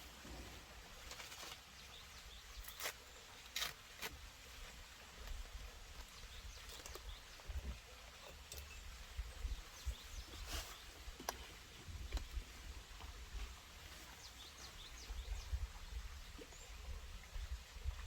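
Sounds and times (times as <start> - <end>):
birds chirping: 6.0 - 13.1, 13.9 - 15.6.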